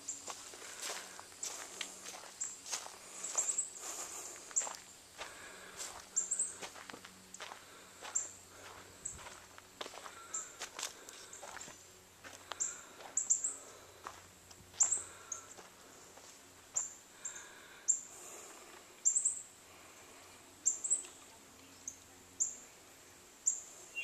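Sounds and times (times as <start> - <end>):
bird chirping: 10.2 - 10.6, 19.0 - 19.5, 20.6 - 22.6, 23.4 - 24.0.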